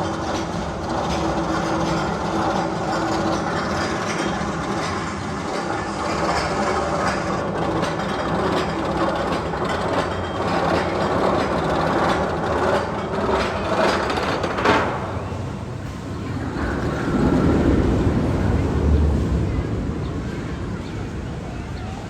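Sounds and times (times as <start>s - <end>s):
sharp track clack: 0.0s - 16.0s
roller coaster rumbling on track: 0.0s - 22.0s.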